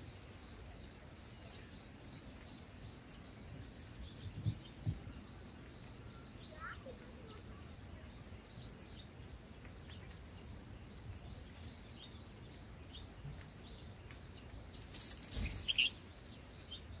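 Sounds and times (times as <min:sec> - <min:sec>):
small birds chirping: 0:00.0 - 0:17.0
bird wings fluttering: 0:14.7 - 0:16.4.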